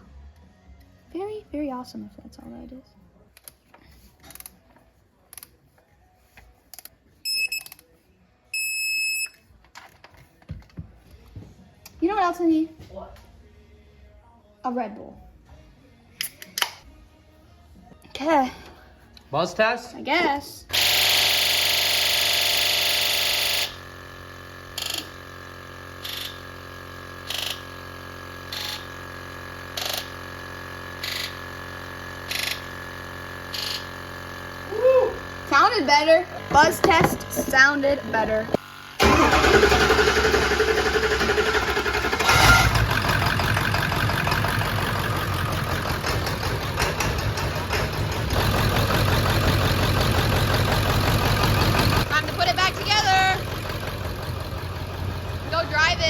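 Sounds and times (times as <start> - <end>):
fuel injectors buzzing: 20.7 - 56.0.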